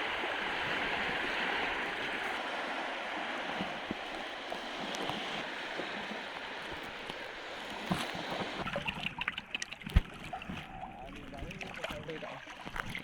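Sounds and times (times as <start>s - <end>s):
surf washing on beach: 0.0s - 13.0s
short splashes and knocks: 7.8s - 13.0s.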